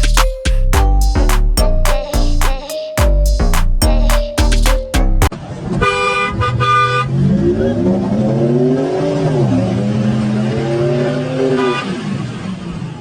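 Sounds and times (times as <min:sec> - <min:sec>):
car horn: 0:05.8 - 0:07.1.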